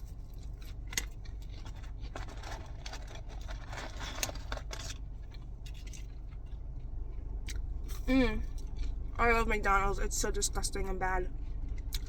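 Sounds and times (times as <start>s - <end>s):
food packaging rustling: 0.4s - 6.4s.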